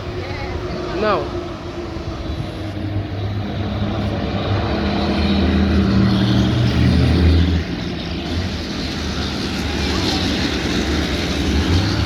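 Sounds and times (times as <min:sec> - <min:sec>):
diesel truck engines running: 0:00.0 - 0:12.0.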